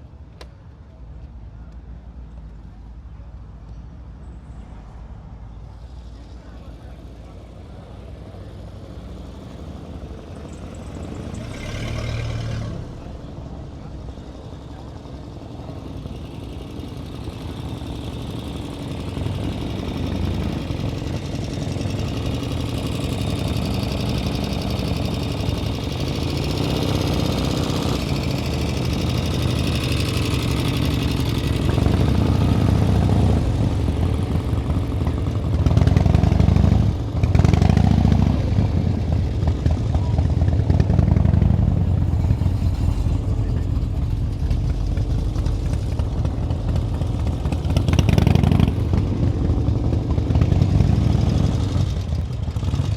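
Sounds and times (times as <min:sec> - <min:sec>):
vehicle engine approaching: 0:05.6 - 0:52.9
engine revs: 0:08.5 - 0:13.9, 0:16.1 - 0:52.9.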